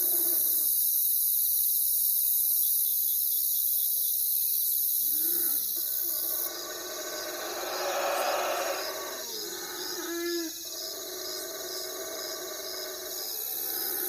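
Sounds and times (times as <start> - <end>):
night insects chorus: 0.0 - 14.0
low animal call: 5.1 - 14.0
owl call: 6.5 - 10.5.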